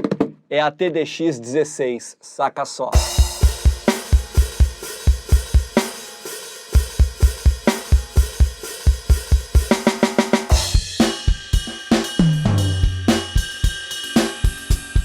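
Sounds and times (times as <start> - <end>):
cymbal crashes: 3.0 - 9.8, 10.4 - 15.0
electronic drum kit groove: 3.0 - 15.0.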